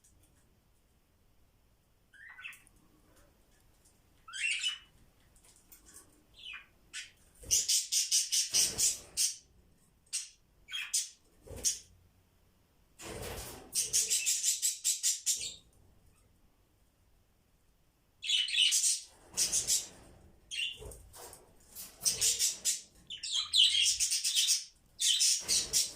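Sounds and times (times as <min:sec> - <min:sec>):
budgies chirping and squawking: 0:02.2 - 0:02.6, 0:04.3 - 0:04.9, 0:06.4 - 0:09.4, 0:10.1 - 0:11.8, 0:13.8 - 0:15.6, 0:18.2 - 0:21.0, 0:21.8 - 0:25.9
rapid harsh budgie chatter: 0:06.4 - 0:09.4, 0:13.8 - 0:15.6, 0:18.3 - 0:21.0, 0:21.8 - 0:25.9.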